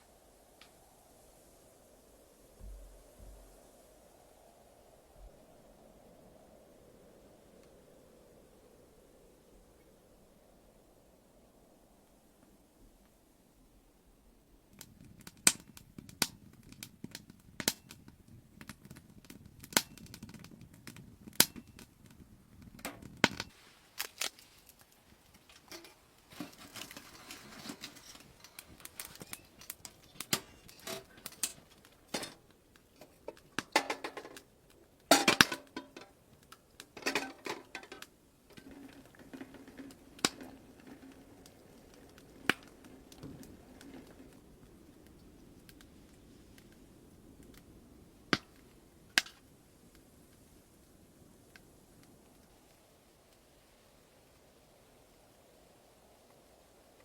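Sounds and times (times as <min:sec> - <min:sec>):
sharp clicks and pops: 0:14.8 - 0:44.4.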